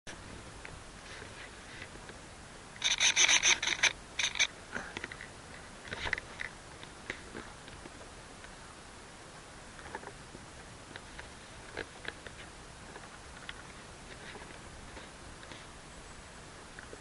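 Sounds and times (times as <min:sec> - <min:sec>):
camera handling clicks and rattles: 0:02.8 - 0:06.5.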